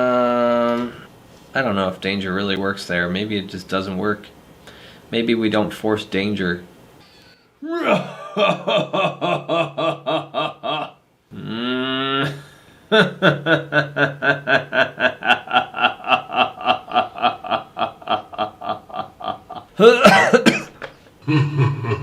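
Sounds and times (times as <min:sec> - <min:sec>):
man laughing rhythmically: 0:07.7 - 0:11.0, 0:12.2 - 0:22.0.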